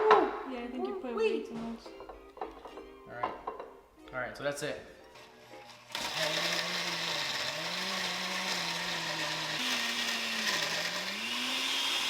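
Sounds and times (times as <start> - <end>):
electric blender blending ice: 5.7 - 12.0.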